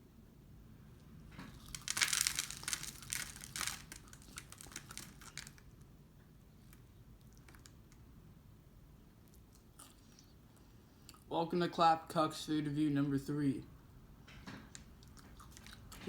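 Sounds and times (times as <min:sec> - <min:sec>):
packaging crinkling and tearing: 0:01.4 - 0:05.8, 0:06.7 - 0:08.0.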